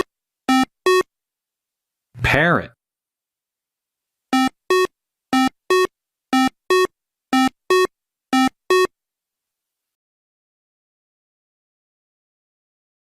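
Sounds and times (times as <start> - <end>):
electronic two-note beeps: 4.4 - 8.9.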